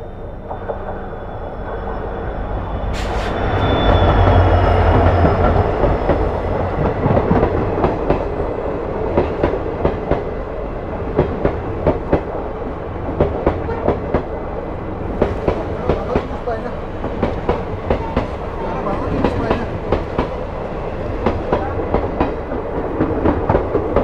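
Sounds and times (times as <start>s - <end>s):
train rumble: 0.0s - 24.0s
train wheels clattering over rails: 15.1s - 24.0s.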